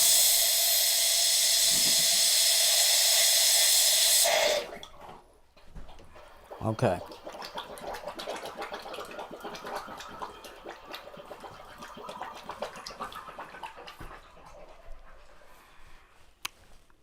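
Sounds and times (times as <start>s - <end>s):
air and water sputtering: 0.0s - 5.2s.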